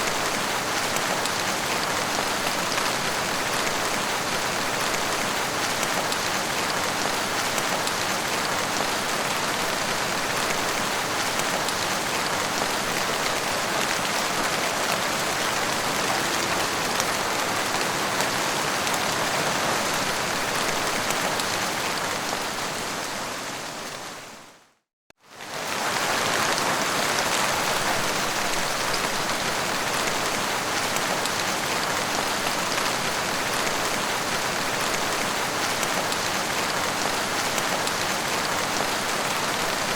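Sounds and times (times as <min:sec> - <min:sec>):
heavy rain falling: 0:00.0 - 0:24.3, 0:25.3 - 0:39.9.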